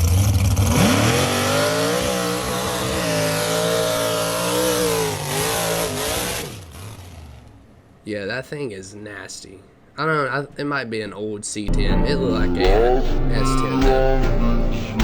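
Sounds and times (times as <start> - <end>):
truck engine revving: 0.0 - 7.5.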